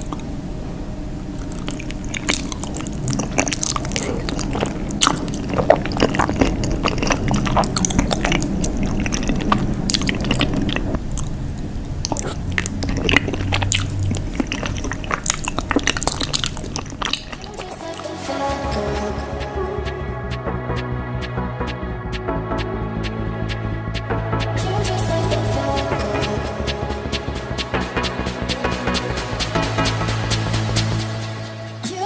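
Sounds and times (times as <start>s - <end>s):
wet mouth smacks and clicks: 1.4s - 11.4s, 12.0s - 18.0s
chewing and biting cheese: 1.4s - 18.4s
music: 17.6s - 32.0s.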